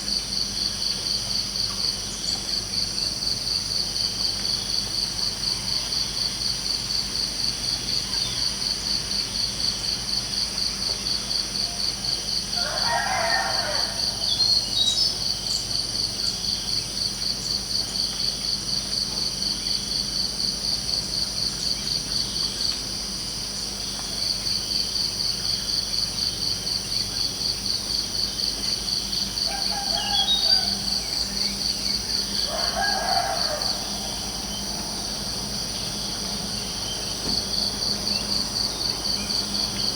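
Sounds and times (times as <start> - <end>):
crickets chirping: 0.0 - 39.9
distant rooster crowing: 12.0 - 15.0, 29.3 - 36.7.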